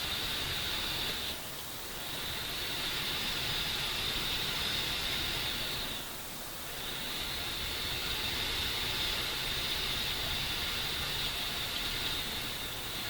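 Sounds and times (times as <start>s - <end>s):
steady rushing hiss: 0.0s - 13.0s.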